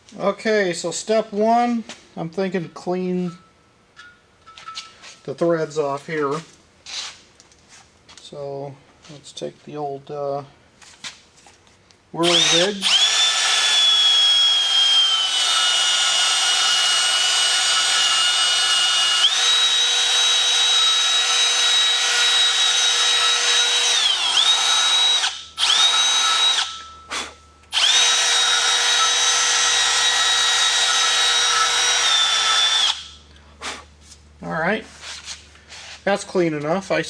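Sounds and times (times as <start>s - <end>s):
rotary power tool whining: 12.2s - 33.2s.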